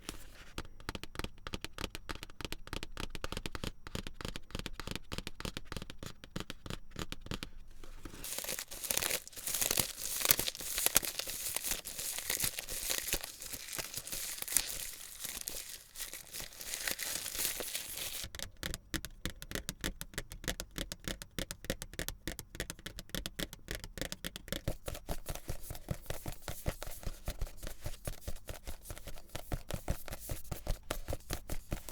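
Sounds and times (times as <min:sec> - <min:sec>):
rapid light clicks and taps: 0:00.6 - 0:07.6, 0:18.3 - 0:31.9
paper crinkling and tearing: 0:08.0 - 0:18.3.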